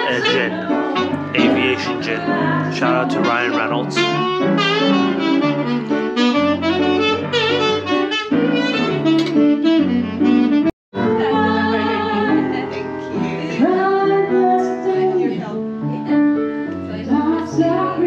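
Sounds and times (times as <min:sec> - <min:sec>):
jazz band with saxophone: 0:00.0 - 0:10.8.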